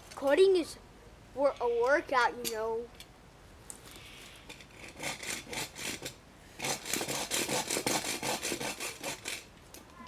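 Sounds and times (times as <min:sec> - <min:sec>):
hand saw cutting wood: 0:04.6 - 0:09.5.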